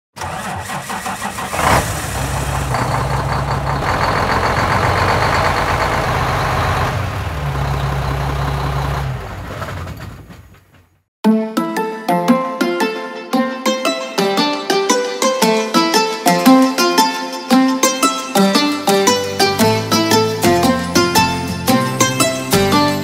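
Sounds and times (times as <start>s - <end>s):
truck engine starting: 0.1s - 11.1s
truck engine idling: 0.2s - 11.0s.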